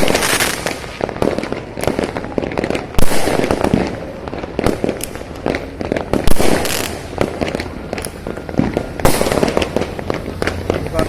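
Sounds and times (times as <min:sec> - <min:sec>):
distant fireworks bangs and crackles: 0:00.0 - 0:11.0
loud firework bang: 0:00.0 - 0:11.0.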